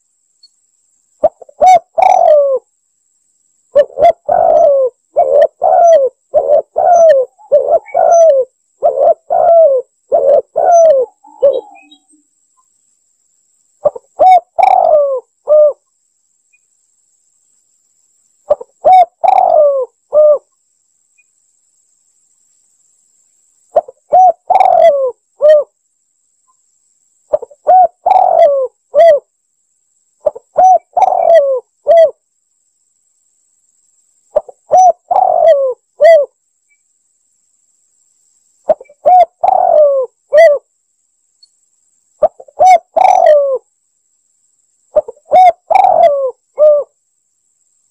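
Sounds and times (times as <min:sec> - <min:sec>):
dove cooing: 0:01.2 - 0:02.7, 0:03.7 - 0:12.1, 0:13.8 - 0:15.8, 0:18.5 - 0:20.5, 0:23.8 - 0:25.7, 0:27.3 - 0:29.2, 0:30.2 - 0:32.2, 0:34.4 - 0:36.3, 0:38.7 - 0:40.7, 0:42.2 - 0:43.6, 0:44.9 - 0:47.0.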